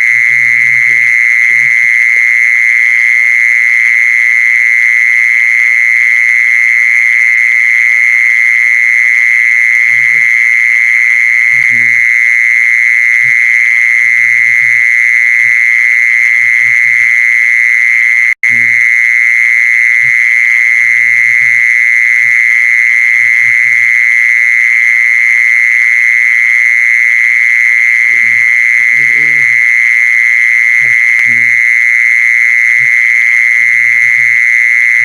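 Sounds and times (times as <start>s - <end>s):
steady high-pitched animal call: 0.0s - 5.3s, 9.7s - 18.9s, 19.9s - 24.1s, 27.6s - 35.0s.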